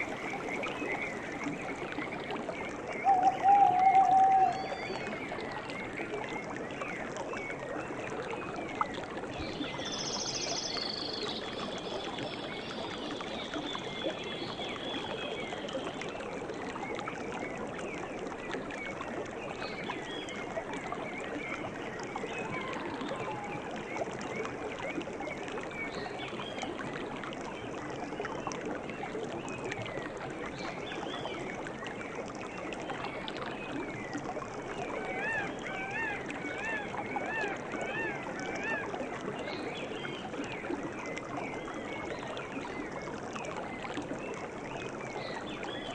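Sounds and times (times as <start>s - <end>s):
running water flowing: 0.0s - 45.9s
small birds chirping: 3.0s - 5.0s.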